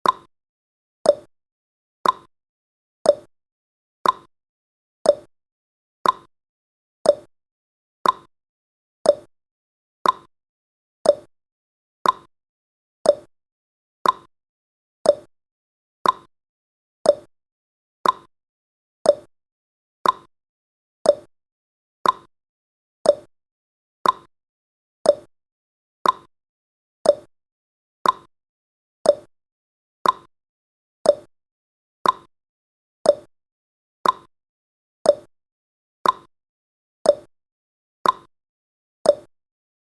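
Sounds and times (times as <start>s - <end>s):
clock-like timer ticking: 0.0s - 0.3s, 1.1s - 1.3s, 2.0s - 2.3s, 3.1s - 3.3s, 4.0s - 4.3s, 5.1s - 5.3s, 6.0s - 6.3s, 7.1s - 7.3s, 8.0s - 8.3s, 9.1s - 9.3s, 10.0s - 10.3s, 11.0s - 11.3s, 12.0s - 12.3s, 13.1s - 13.3s, 14.0s - 14.3s, 15.0s - 15.3s, 16.0s - 16.3s, 17.0s - 17.3s, 18.0s - 18.3s, 19.0s - 19.3s, 20.0s - 20.3s, 21.0s - 21.3s, 22.0s - 22.3s, 23.0s - 23.3s, 24.0s - 24.3s, 25.0s - 25.3s, 26.0s - 26.3s, 27.0s - 27.3s, 28.0s - 28.3s, 29.0s - 29.3s, 30.0s - 30.3s, 31.0s - 31.3s, 32.0s - 32.3s, 33.0s - 33.3s, 34.0s - 34.3s, 35.1s - 35.3s, 36.0s - 36.3s, 37.1s - 37.3s, 38.0s - 38.3s, 39.1s - 39.3s.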